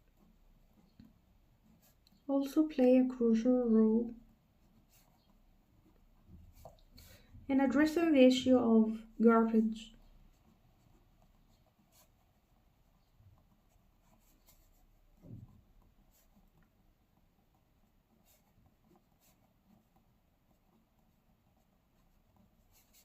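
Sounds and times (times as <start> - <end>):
pen scratching on paper: 0.0 - 23.0
soft low thump: 15.1 - 15.8.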